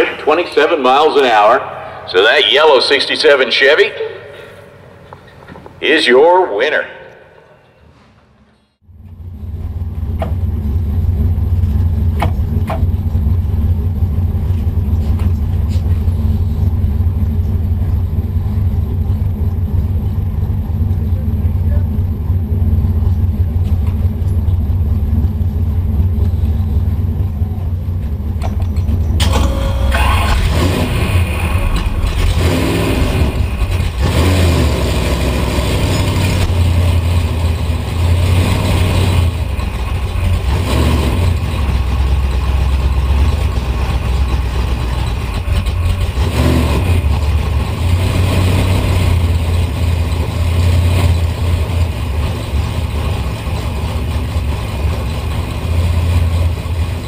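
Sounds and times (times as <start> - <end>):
car engine idling: 8.8 - 57.0
engine throttle bursts: 9.2 - 57.0.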